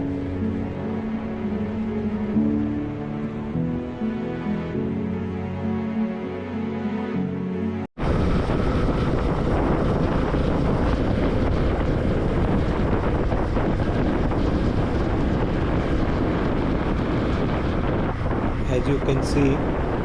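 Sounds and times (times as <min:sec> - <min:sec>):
wind rushing over microphone: 0:00.0 - 0:05.3, 0:08.0 - 0:20.0
background music: 0:00.0 - 0:07.9.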